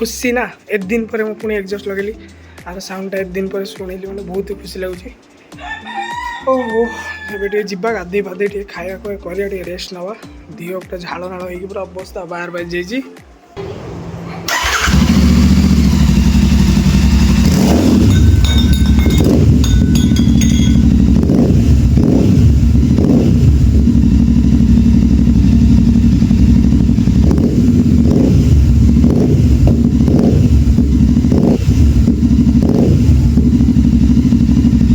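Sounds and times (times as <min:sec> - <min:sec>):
motorcycle engine running: 0:13.6 - 0:34.9.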